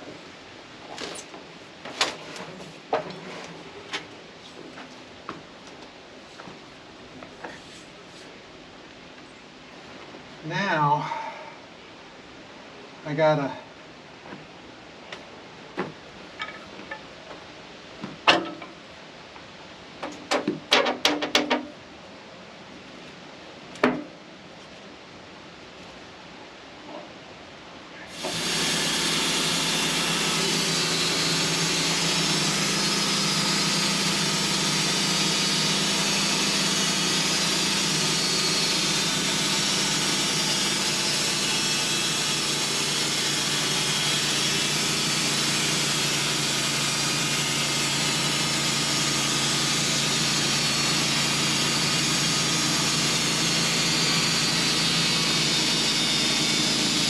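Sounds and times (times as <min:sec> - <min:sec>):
band sawmill cutting a log: 0:28.1 - 0:57.0.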